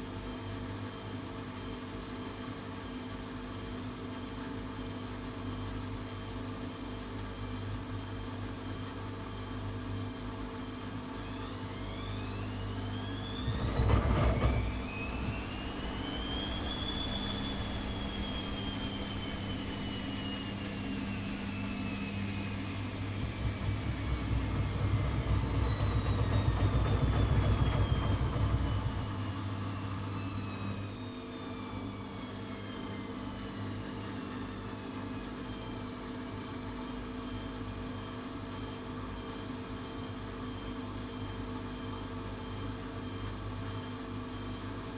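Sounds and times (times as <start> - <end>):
washing machine motor whine: 10.8 - 37.5
low rumble: 13.2 - 20.4, 22.3 - 30.6.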